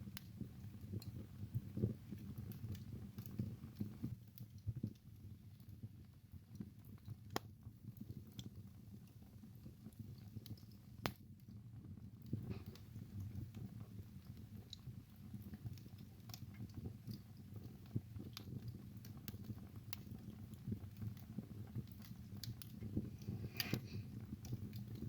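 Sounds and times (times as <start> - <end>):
fire crackles: 0.0 - 25.0
wood fire burning: 0.0 - 25.0
sharp pops from fire: 6.6 - 8.6, 9.9 - 11.4, 12.2 - 25.0.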